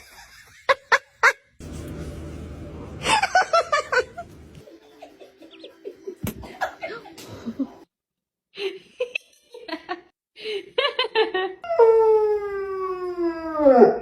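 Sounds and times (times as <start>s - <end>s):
person laughing: 3.0s - 4.4s.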